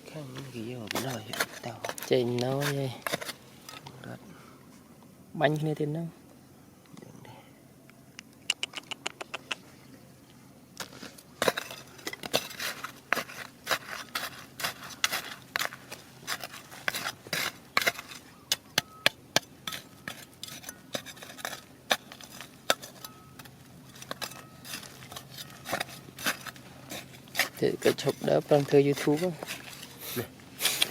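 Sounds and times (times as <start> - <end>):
rocks and pebbles clacking: 0.4 - 4.0, 10.8 - 30.9.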